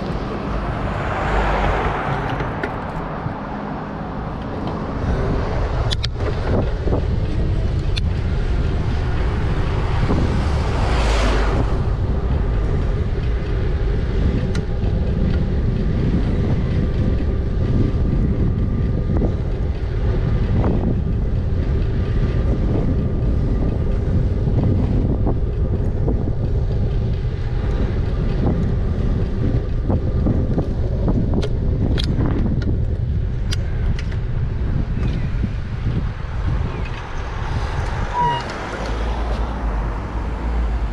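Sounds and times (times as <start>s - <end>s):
low road noise rumble: 0.0s - 40.9s
wind buffeting microphone: 0.0s - 40.9s.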